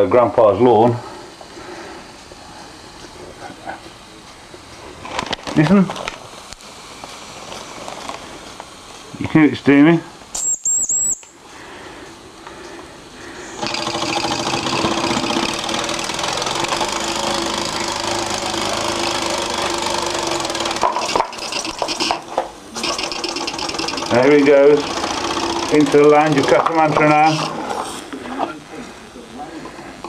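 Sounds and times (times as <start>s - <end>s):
miniature steam engine running: 13.4s - 27.8s.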